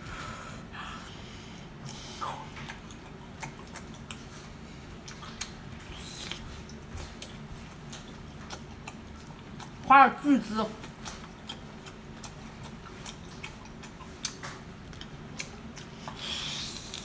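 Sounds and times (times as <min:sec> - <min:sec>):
wet chewing and mouth smacks: 0:01.6 - 0:09.9, 0:10.8 - 0:17.0.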